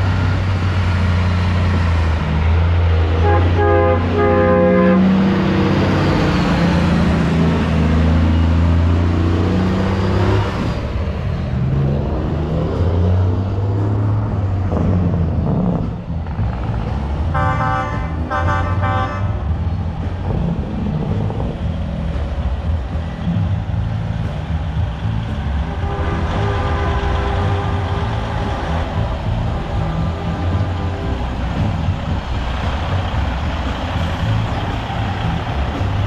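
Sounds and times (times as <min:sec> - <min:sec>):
diesel truck engine running: 0:00.0 - 0:36.0
truck horn blasts: 0:03.0 - 0:06.4, 0:17.3 - 0:19.6, 0:25.7 - 0:31.8.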